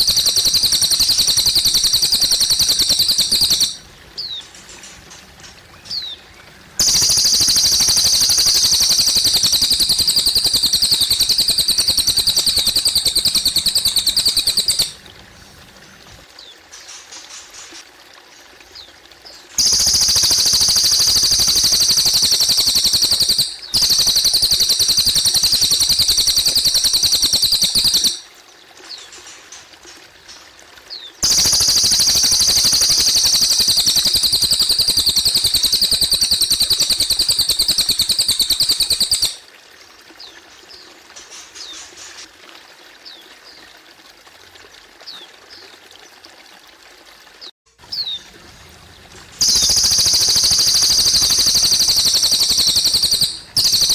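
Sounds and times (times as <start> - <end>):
bird singing rapid high trills: 0.0 - 16.2, 19.6 - 28.2, 31.2 - 39.4, 48.9 - 53.9
water trickling: 0.0 - 53.9.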